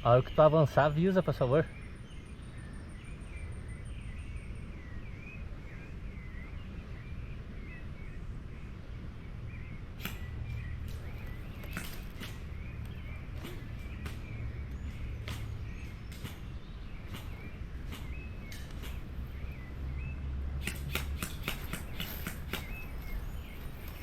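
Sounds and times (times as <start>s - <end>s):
sharp clicks: 10.0s - 14.4s, 20.6s - 23.2s.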